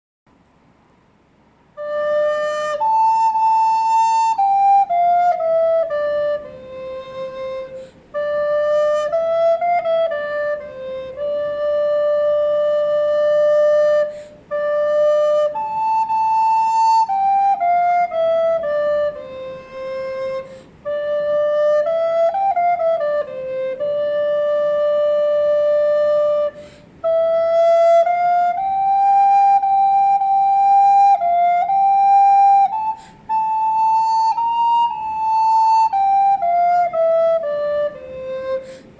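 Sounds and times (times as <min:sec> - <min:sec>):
recorder melody: 0:01.7 - 0:38.9
player breathing: 0:26.6 - 0:27.0, 0:38.6 - 0:38.9.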